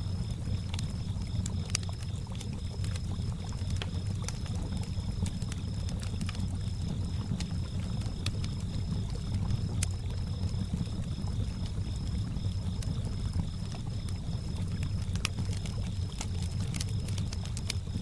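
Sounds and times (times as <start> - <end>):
campfire crackling: 0.0 - 18.0
crickets chirping: 0.0 - 18.0.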